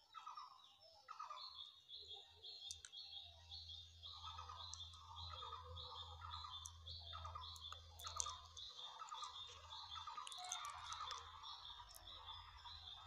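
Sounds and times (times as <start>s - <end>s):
faint bird chirping: 0.0s - 13.0s.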